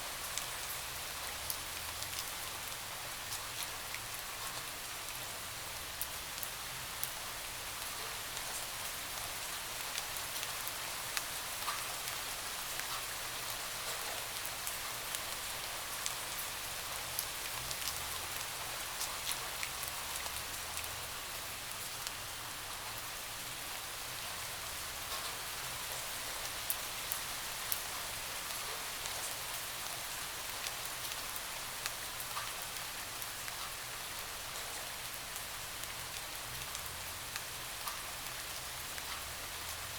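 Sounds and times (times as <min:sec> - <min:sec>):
steady rain: 0:00.0 - 0:39.9
raindrops ticking on a window: 0:28.5 - 0:39.9.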